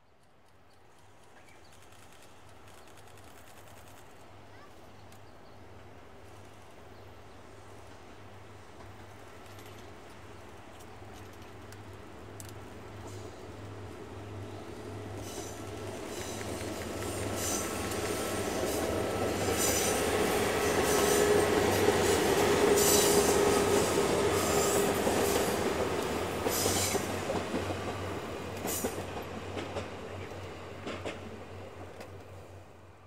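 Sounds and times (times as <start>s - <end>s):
diesel train passing by: 5.5s - 33.0s
wheels clicking over rail joints: 8.7s - 13.8s.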